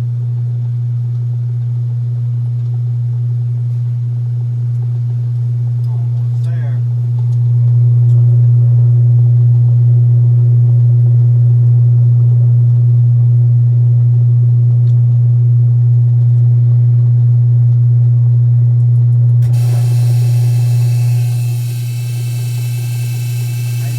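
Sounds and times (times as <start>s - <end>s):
washing machine spin hum: 0.0s - 23.9s
hiss: 19.4s - 23.9s.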